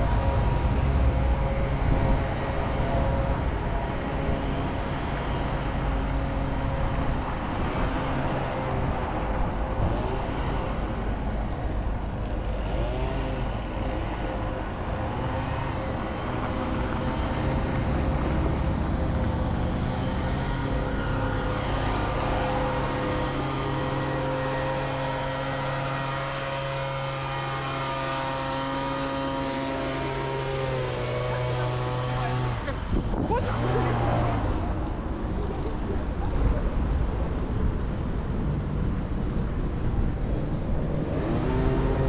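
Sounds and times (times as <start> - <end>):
low engine rumble: 0.0 - 42.0
road noise: 0.0 - 42.0
vehicle hum: 0.0 - 42.0.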